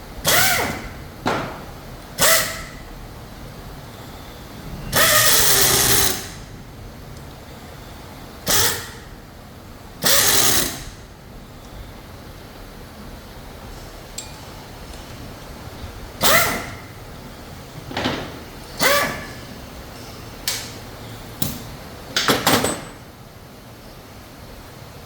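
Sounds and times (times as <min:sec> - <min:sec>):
steady background noise: 0:00.0 - 0:25.0
metal engine parts clanking: 0:14.0 - 0:15.7.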